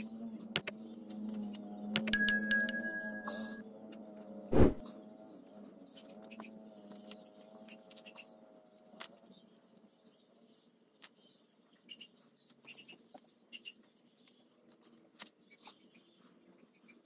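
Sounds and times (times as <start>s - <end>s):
bright chime: 2.2s - 3.6s.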